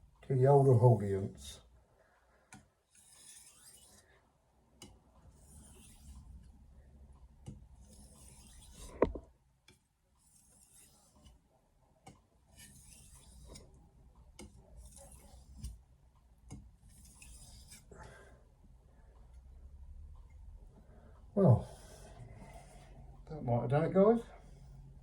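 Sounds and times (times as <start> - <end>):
knife scraping on whetstone: 2.9 - 4.1, 5.3 - 6.4, 7.8 - 9.2, 10.2 - 11.4, 12.5 - 13.8, 14.4 - 15.8, 16.8 - 17.9, 21.6 - 23.0.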